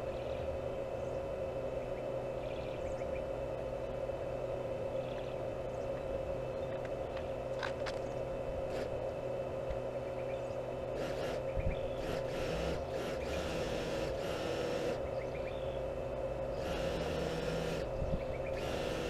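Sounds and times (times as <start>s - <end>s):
machine whining: 9.8s - 19.0s.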